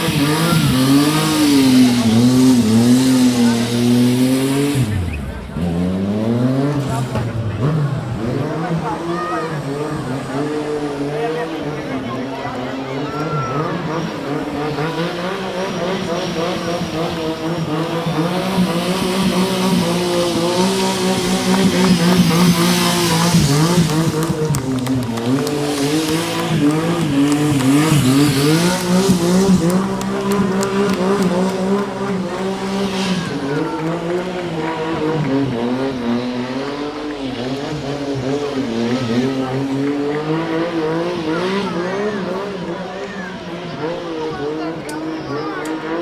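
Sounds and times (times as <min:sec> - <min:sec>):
tyre screech: 0:00.0 - 0:02.9
motorcycle engine revving: 0:00.0 - 0:46.0.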